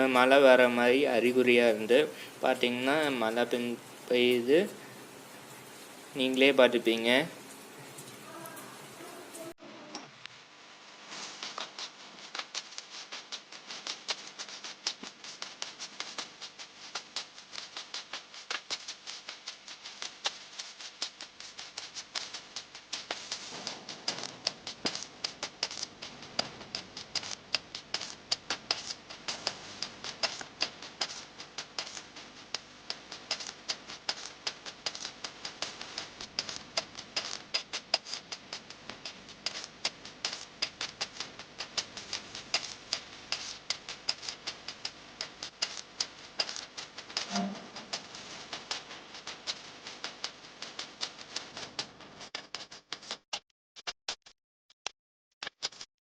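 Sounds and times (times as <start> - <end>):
heavy rain falling: 0.0 - 9.6
raindrops tapping: 0.0 - 9.6, 11.4 - 51.9.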